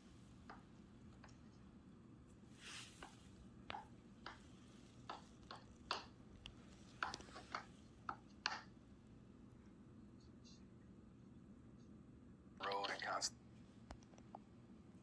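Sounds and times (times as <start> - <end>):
light clicks and taps: 0.4 - 1.6, 2.8 - 8.7, 13.9 - 14.5.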